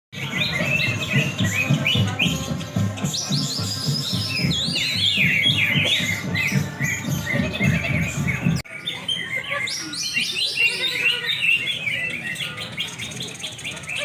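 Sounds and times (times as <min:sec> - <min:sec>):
birds chirping and trilling: 0:00.1 - 0:14.0
low musical backing: 0:00.2 - 0:08.6.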